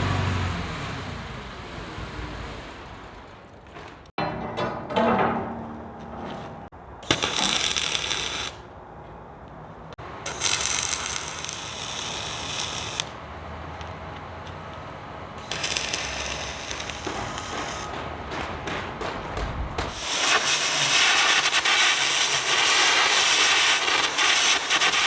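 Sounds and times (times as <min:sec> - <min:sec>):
electric arc crackling and hissing: 0:07.0 - 0:08.6, 0:10.3 - 0:13.1, 0:15.4 - 0:17.9, 0:19.9 - 0:25.0
workshop hiss: 0:10.0 - 0:13.2, 0:15.4 - 0:17.9, 0:19.9 - 0:25.0.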